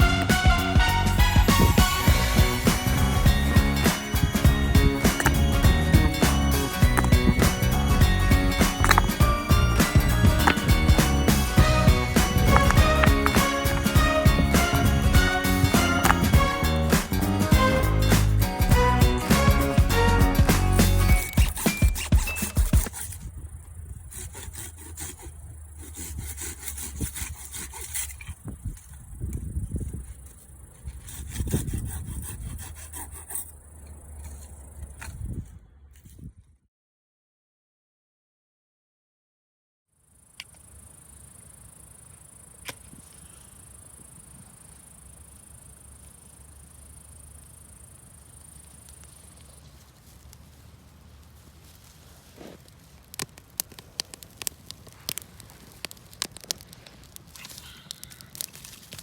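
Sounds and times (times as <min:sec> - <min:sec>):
background music: 0:00.0 - 0:22.7
hand saw cutting wood: 0:05.0 - 0:17.2, 0:19.3 - 0:23.3, 0:24.1 - 0:28.4, 0:30.8 - 0:33.6
crickets trilling: 0:21.1 - 0:31.2, 0:40.1 - 0:59.0
sharp clicks: 0:53.0 - 0:59.0.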